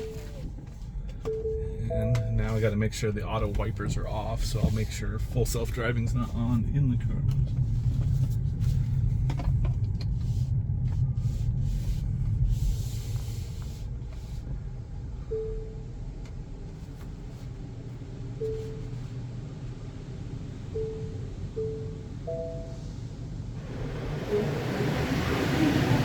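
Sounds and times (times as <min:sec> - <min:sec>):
low rumble in car cabin: 0:00.0 - 0:26.0
short soft musical notes: 0:01.4 - 0:02.6, 0:20.8 - 0:23.0.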